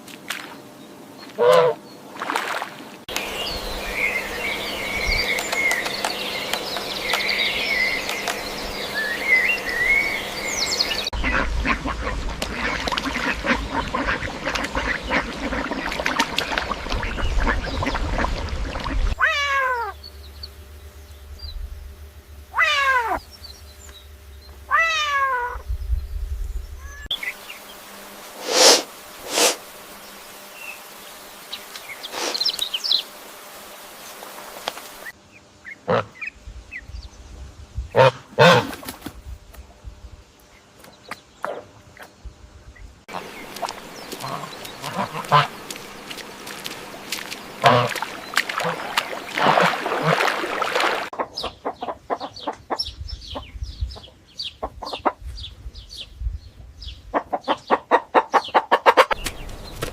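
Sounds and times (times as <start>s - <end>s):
rapid harsh animal calls: 22.5s - 23.2s
high animal chirping: 22.5s - 23.3s.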